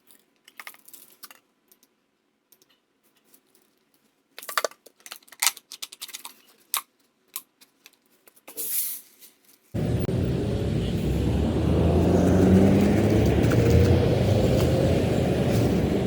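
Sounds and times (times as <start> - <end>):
plastic rustling: 2.6 - 9.7.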